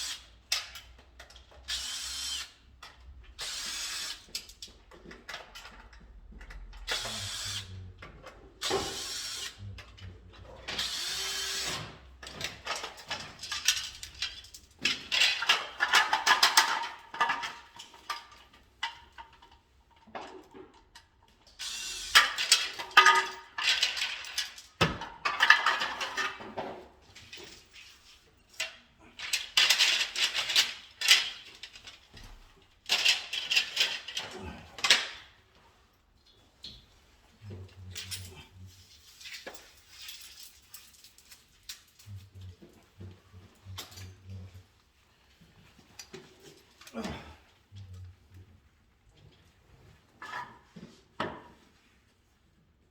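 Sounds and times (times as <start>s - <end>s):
parts clicking and rattling: 0.0s - 7.4s, 8.0s - 35.4s, 36.2s - 44.7s
power drill bursts: 1.7s - 2.5s, 6.9s - 7.7s, 8.8s - 9.6s, 10.8s - 11.8s.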